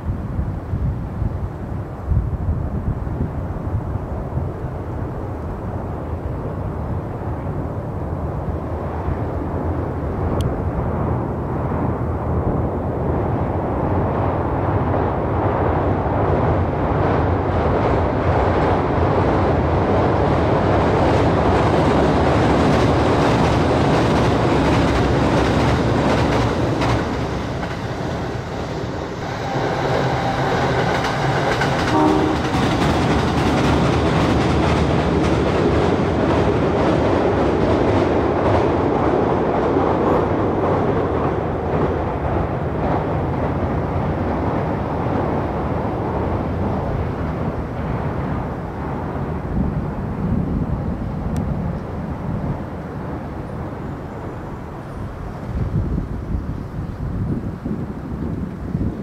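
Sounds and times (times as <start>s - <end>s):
train wheels rumbling on rails: 5.7s - 59.0s
steady tones: 23.5s - 34.3s.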